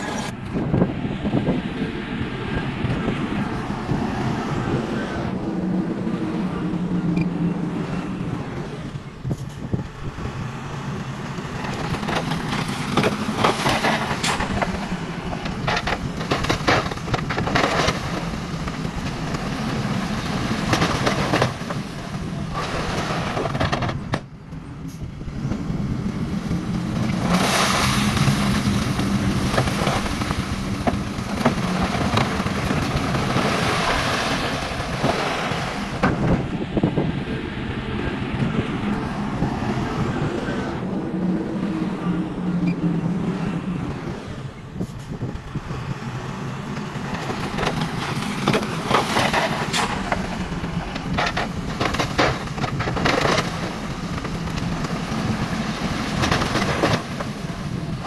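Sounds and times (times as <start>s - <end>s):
crackles and clicks: 11.3s - 24.7s, 25.5s - 35.4s, 46.7s - 58.0s.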